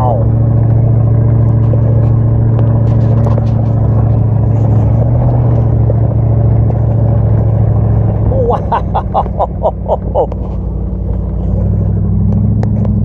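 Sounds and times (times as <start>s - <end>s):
truck engine under load: 0.0s - 13.0s.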